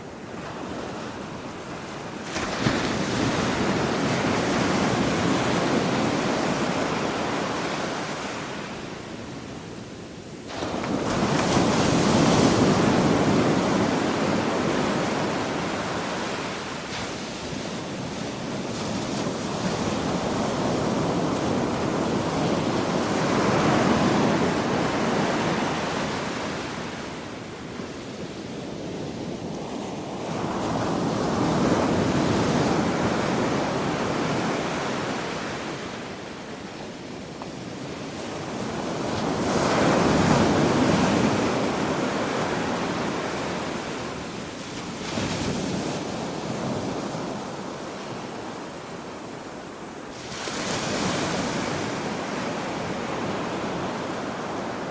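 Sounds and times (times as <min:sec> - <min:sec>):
waves breaking on shore: 0:00.0 - 0:09.3, 0:10.4 - 0:54.9.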